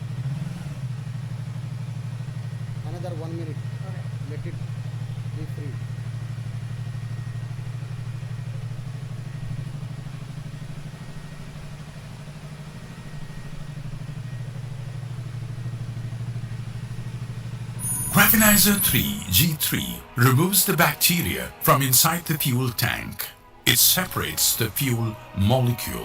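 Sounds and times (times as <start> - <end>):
motorcycle engine idling: 0.0 - 9.1.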